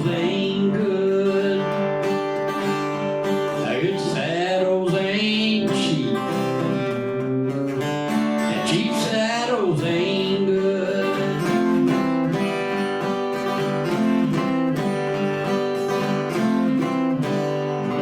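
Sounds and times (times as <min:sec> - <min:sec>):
man singing: 0:00.0 - 0:07.3, 0:08.2 - 0:12.4
acoustic guitar: 0:00.0 - 0:18.0.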